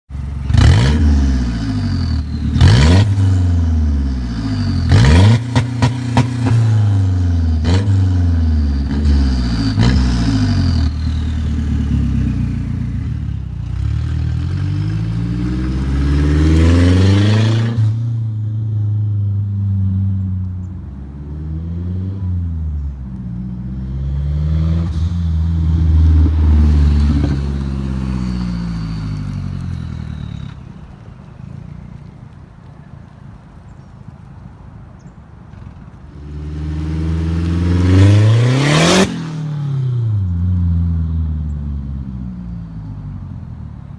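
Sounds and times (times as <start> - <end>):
exhaust cracks: 0.4 - 13.8
car engine revving loudly: 0.5 - 12.6, 13.8 - 18.0, 36.3 - 39.9.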